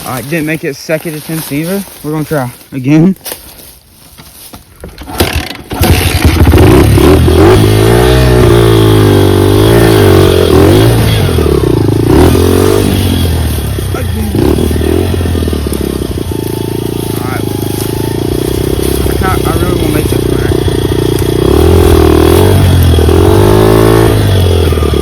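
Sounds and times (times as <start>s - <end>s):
dirt bike engine revving: 5.1s - 25.0s.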